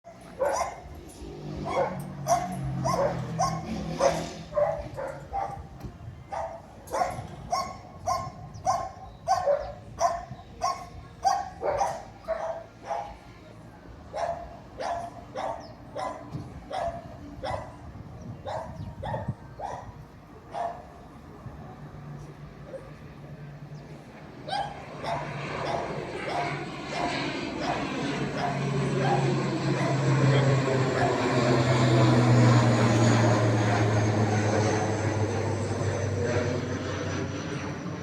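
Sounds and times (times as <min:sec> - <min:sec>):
dog barking: 0:00.1 - 0:00.9, 0:01.6 - 0:05.7, 0:06.3 - 0:13.2, 0:14.1 - 0:17.8, 0:18.4 - 0:19.9, 0:20.5 - 0:20.9, 0:24.5 - 0:31.3.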